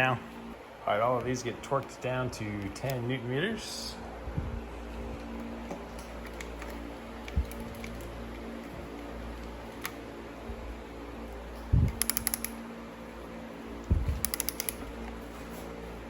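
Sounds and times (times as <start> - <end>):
steady hum: 0.0 - 16.0
ratchet wrench clicks: 12.0 - 12.6, 14.2 - 14.9.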